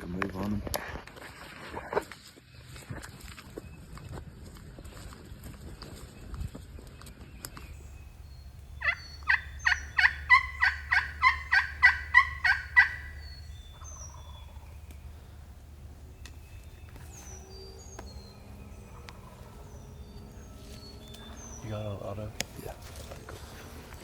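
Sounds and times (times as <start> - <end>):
turkey yelping: 8.7 - 14.8.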